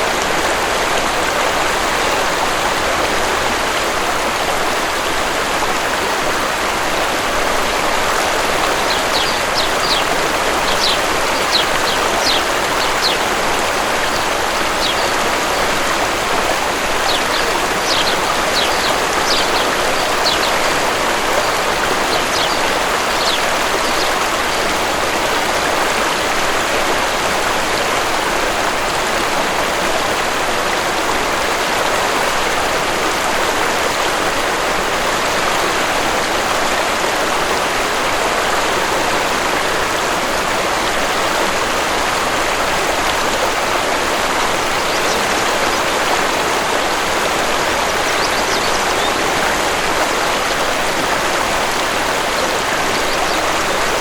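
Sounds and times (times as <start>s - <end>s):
waterfall rushing: 0.0s - 54.0s
bird chirps: 8.8s - 13.2s, 14.8s - 15.1s, 17.1s - 20.5s.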